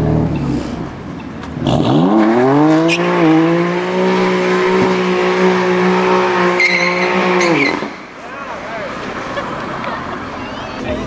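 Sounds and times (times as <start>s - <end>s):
sports car engine accelerating: 0.0s - 8.1s.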